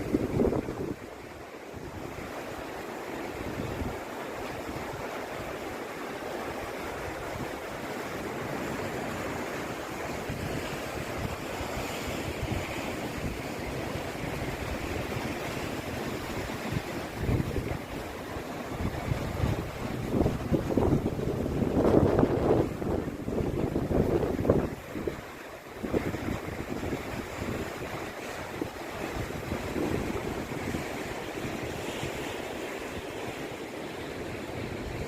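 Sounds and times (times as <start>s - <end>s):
wind rumbling on microphone: 0.0s - 1.2s, 10.0s - 35.0s
sea surf washing: 0.0s - 35.0s.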